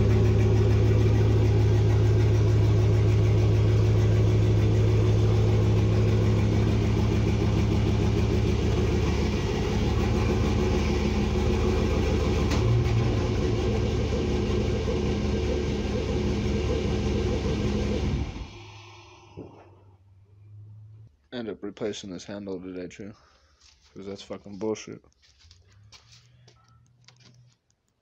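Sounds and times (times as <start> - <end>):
vehicle engine idling: 0.0 - 21.1.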